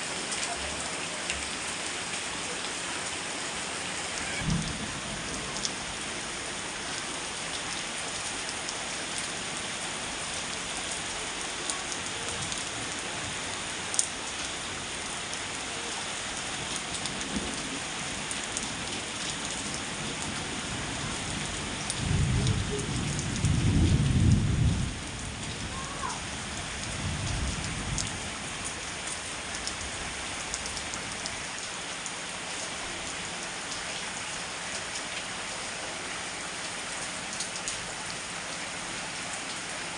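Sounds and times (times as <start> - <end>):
heavy rain falling: 0.0 - 39.9
thunder rumbling: 4.2 - 6.0, 22.0 - 25.9.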